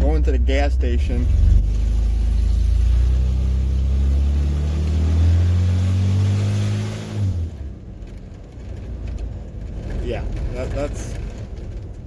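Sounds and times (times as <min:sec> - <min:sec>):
loud truck engine accelerating: 0:00.0 - 0:08.1.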